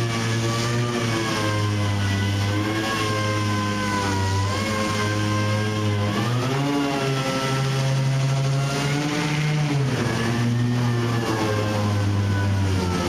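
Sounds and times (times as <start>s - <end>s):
sander motor whine: 0.0s - 13.0s.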